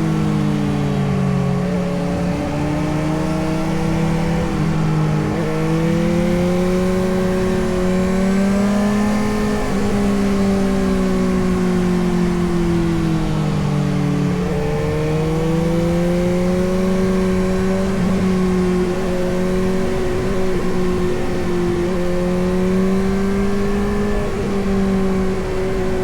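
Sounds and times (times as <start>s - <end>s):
motorcycle engine running: 13.4s - 26.0s.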